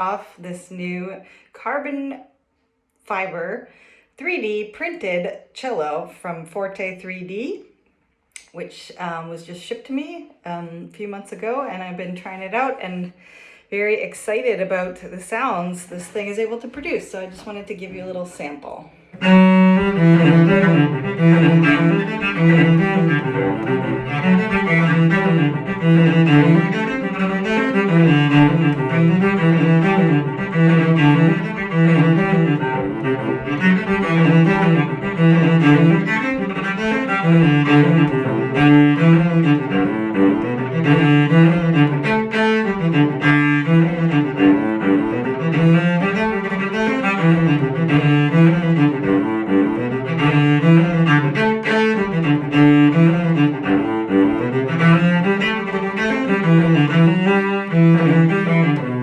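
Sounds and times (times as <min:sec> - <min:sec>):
bowed cello melody: 0:19.1 - 0:59.0.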